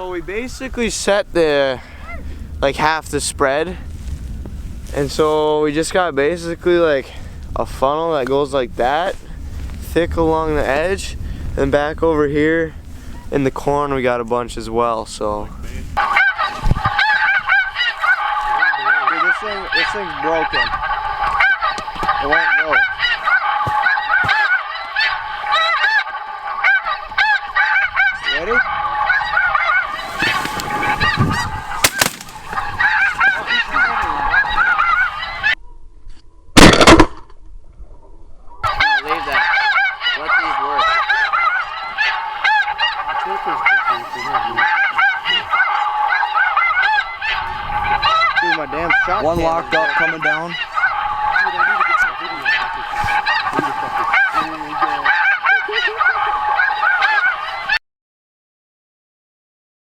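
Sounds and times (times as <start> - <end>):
geese honking: 14.6 - 35.6, 38.6 - 57.8.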